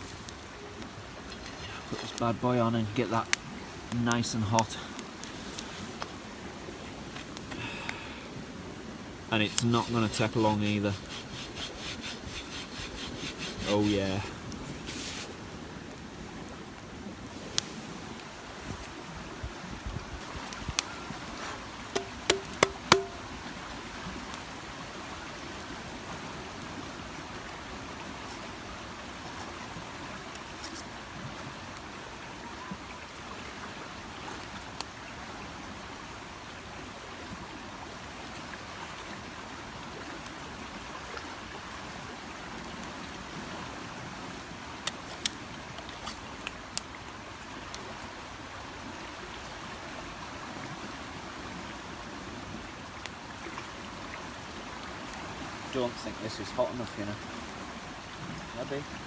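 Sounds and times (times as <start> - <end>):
river water rushing: 17.2 - 59.0
sharp clicks and knocks: 22.0 - 23.3.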